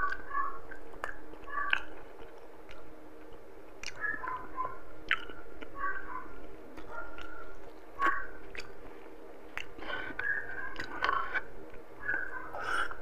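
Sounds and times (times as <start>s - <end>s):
lip smacking clicks: 0.0s - 4.2s, 5.0s - 5.8s, 8.0s - 8.8s, 9.5s - 12.2s
wet chewing: 0.0s - 13.0s.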